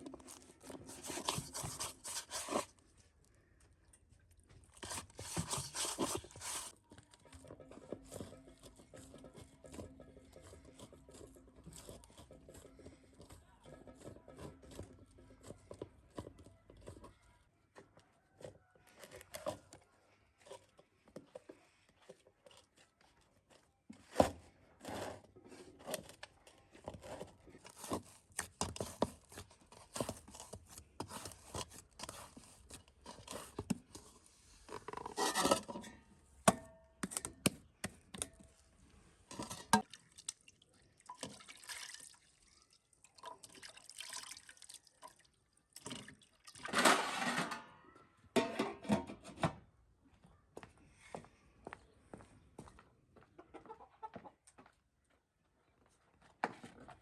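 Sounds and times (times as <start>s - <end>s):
cooking utensils knocking and scraping: 7.3s - 17.1s, 34.7s - 38.5s, 39.3s - 39.9s, 46.6s - 49.6s.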